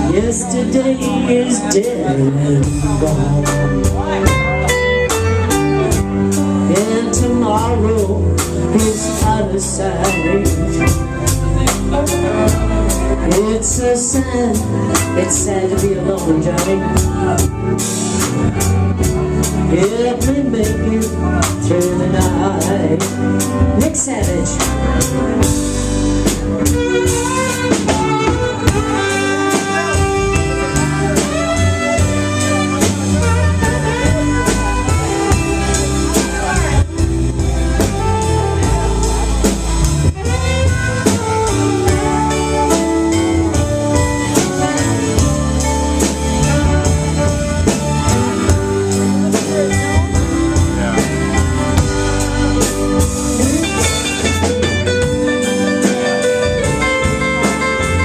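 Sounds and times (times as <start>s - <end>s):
bass: 0.0s - 58.0s
drum kit: 0.0s - 58.0s
live band playing: 0.0s - 58.0s
saxophone solo: 26.1s - 58.0s.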